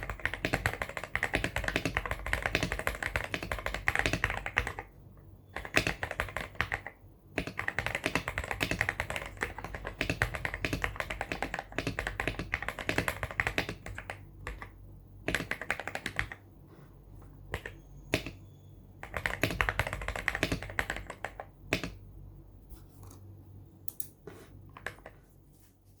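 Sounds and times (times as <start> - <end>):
mechanical keyboard typing: 0.0 - 4.9, 5.6 - 16.4, 17.5 - 18.4, 19.0 - 22.0.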